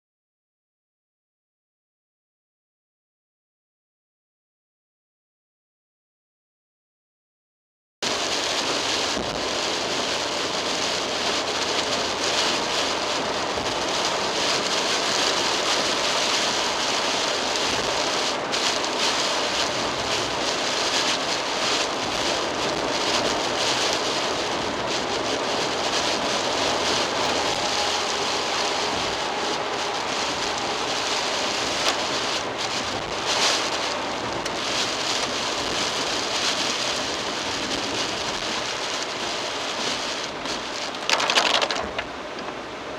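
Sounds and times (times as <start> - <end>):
heavy rain beating on car: 8.0 - 42.9
tyres hissing on wet road: 8.0 - 42.9
low steady car hum: 8.2 - 40.9.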